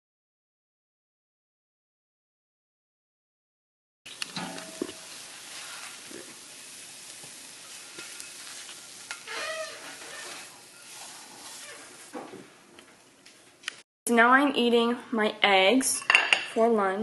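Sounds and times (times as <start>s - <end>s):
eggs sizzling in a frying pan: 4.1s - 12.3s.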